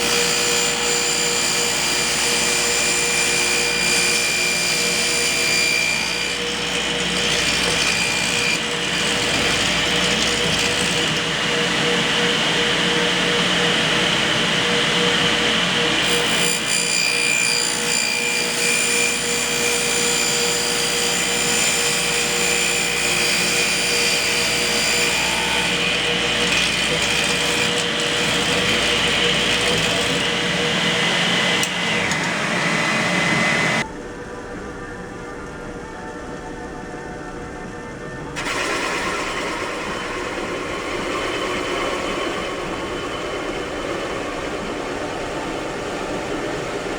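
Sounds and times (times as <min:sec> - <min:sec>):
power tool grinding steel: 0:00.0 - 0:33.8.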